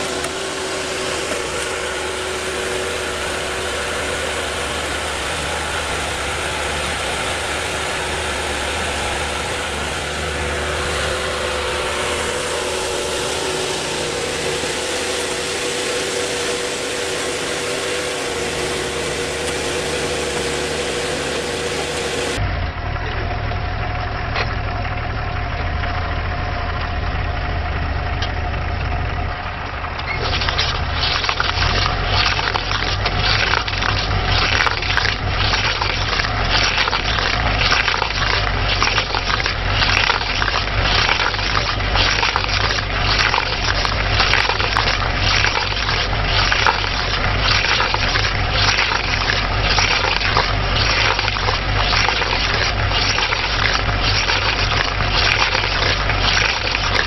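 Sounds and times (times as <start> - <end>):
machine engine running: 0.0 - 57.0
wood crackling and splintering: 30.0 - 57.0.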